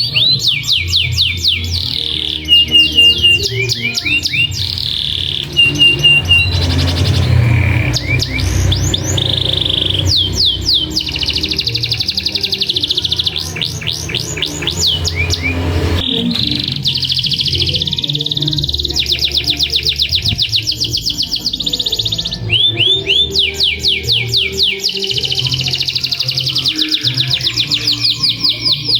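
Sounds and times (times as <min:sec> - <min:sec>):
canary singing trills: 0:00.0 - 0:28.9
steady low hum: 0:01.6 - 0:22.5.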